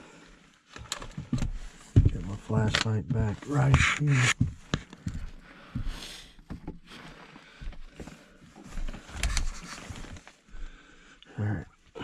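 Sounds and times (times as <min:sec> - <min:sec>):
handling knocks and clicks: 0:00.8 - 0:04.0.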